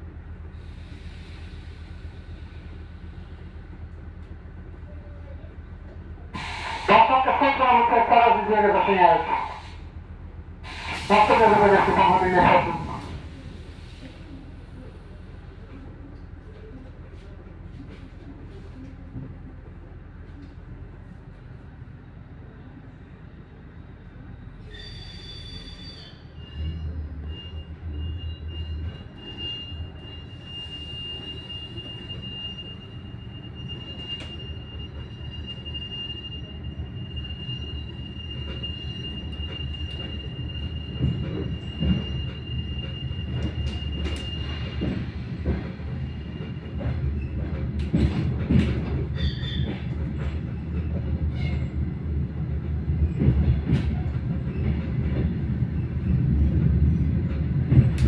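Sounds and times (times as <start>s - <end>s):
train running rumble: 36.4s - 58.0s.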